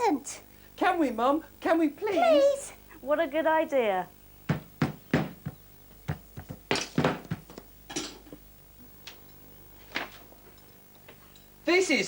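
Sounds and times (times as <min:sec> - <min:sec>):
single knocks: 0:04.5 - 0:07.7.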